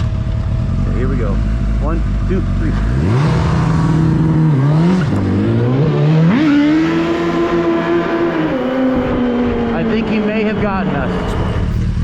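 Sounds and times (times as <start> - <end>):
motorcycle engine accelerating hard: 0.0 - 12.0.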